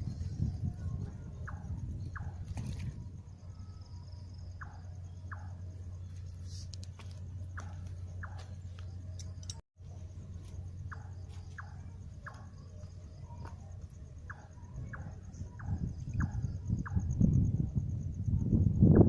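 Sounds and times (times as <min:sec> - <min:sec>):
pulsing high insect tone: 0:00.0 - 0:19.0
steady low hum: 0:00.0 - 0:19.0
small animal chirping: 0:10.7 - 0:17.2.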